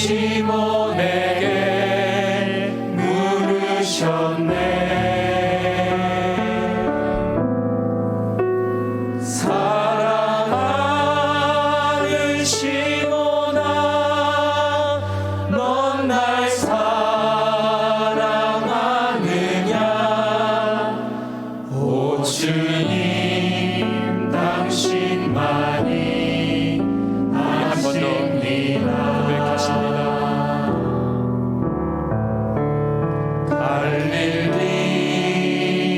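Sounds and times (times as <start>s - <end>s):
keyboard and synth chords: 0.0s - 11.9s.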